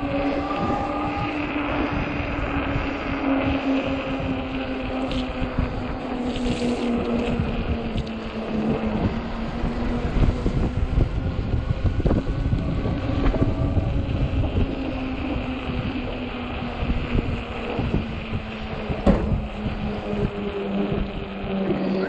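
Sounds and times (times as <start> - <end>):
electric motor hum: 0.0 - 22.0
wind buffeting microphone: 0.0 - 22.0.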